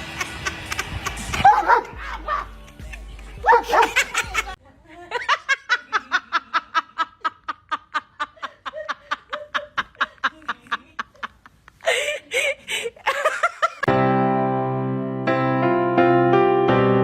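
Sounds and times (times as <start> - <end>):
person laughing in pulses: 0.0 - 4.6.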